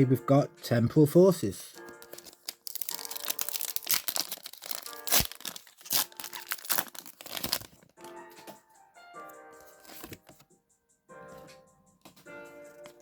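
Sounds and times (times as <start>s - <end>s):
soft background music: 0.0s - 13.0s
foil wrapper tearing and crinkling: 1.9s - 7.9s.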